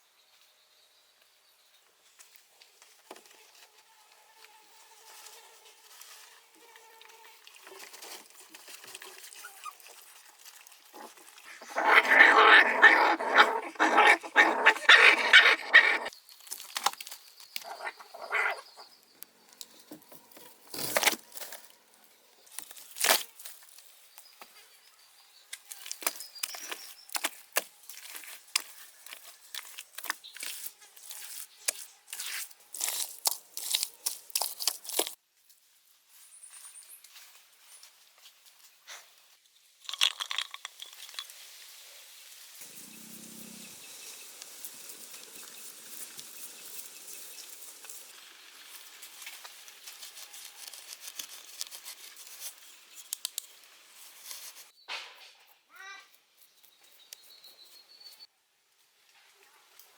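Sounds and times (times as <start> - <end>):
crackling or rustling: 2.2 - 24.7, 25.5 - 54.8
puppy whining and yelping: 11.6 - 16.1.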